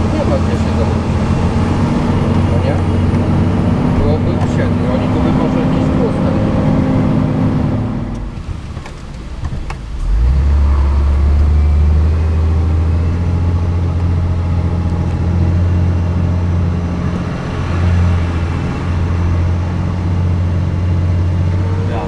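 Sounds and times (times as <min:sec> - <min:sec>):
truck diesel engine under load: 0:00.0 - 0:22.0.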